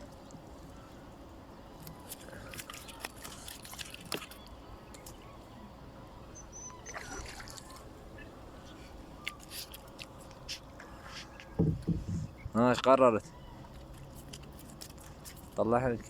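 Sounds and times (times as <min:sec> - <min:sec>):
high bird chirp: 0:04.4 - 0:07.9.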